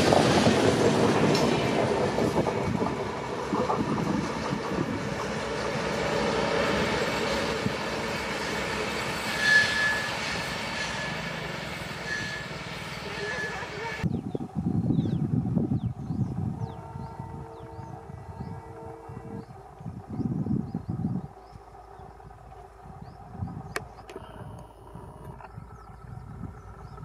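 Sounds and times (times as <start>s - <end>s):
train wheels rumbling and clacking: 0.0s - 14.1s
train wheel squeal: 0.1s - 14.1s.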